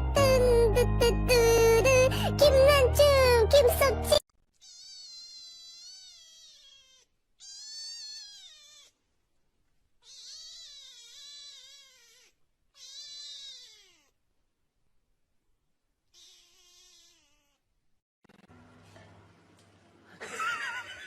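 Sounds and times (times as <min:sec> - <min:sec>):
cat meowing: 0:04.6 - 0:09.0, 0:10.0 - 0:14.2, 0:16.1 - 0:17.6.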